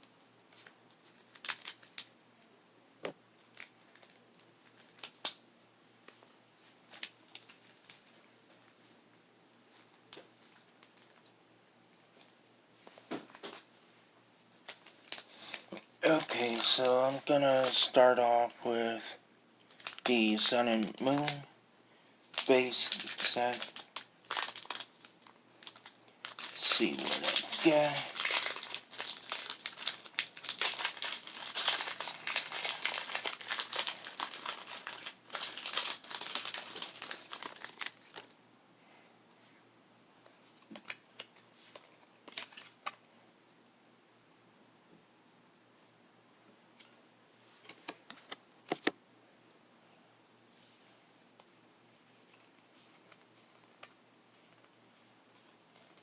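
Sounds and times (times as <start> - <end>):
foil wrapper crinkling: 0.5 - 2.1, 3.4 - 5.4, 6.9 - 8.8, 14.6 - 19.1, 19.7 - 21.5, 22.3 - 38.4, 40.6 - 43.0, 52.2 - 56.0.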